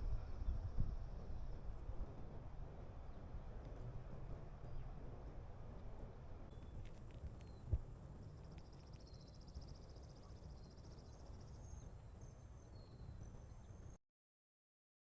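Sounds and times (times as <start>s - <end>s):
low wind rumble: 0.0s - 13.8s
rapid pulsed insect trill: 6.5s - 14.0s.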